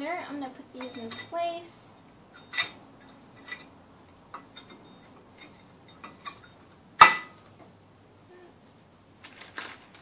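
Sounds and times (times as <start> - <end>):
ringing metal clink: 0.8 - 1.4, 2.3 - 3.7.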